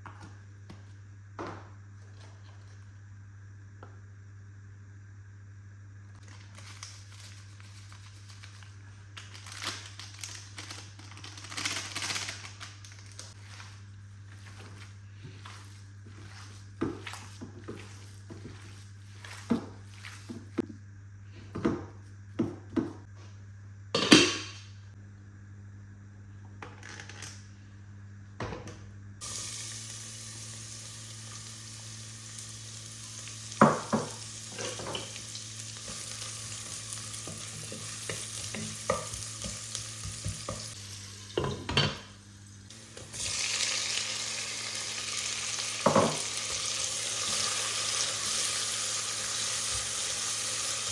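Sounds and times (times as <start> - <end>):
food sizzling in frying pan: 29.2 - 50.9.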